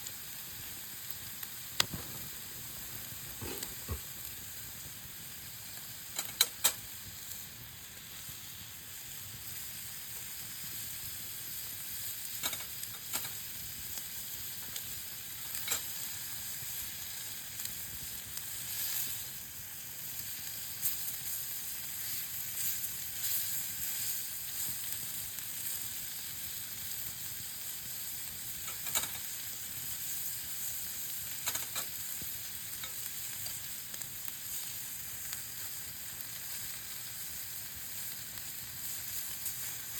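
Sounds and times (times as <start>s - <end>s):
meat sizzling over campfire: 0.0s - 39.9s
sharp popping: 1.8s - 4.2s.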